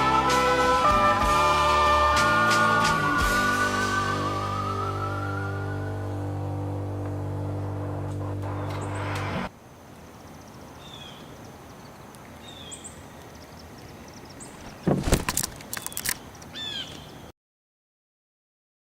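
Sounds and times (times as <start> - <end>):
cardinals chirping: 10.4 - 17.3.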